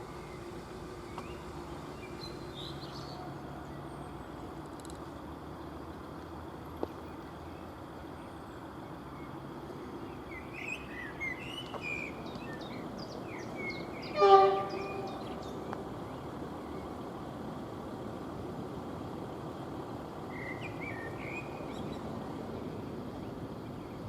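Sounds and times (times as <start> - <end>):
small birds chirping: 0.0 - 4.5, 10.0 - 17.2, 20.3 - 24.0
train horn blast: 14.0 - 15.5.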